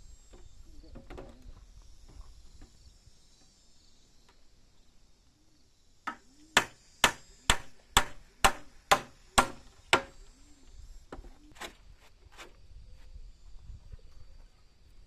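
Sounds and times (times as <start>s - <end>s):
hammer driving nail into wood: 6.1s - 10.2s.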